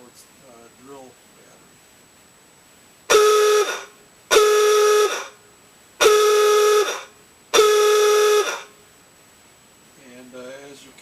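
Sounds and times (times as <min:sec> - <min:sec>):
electric car horn blasts: 0:03.1 - 0:05.4, 0:06.0 - 0:08.8.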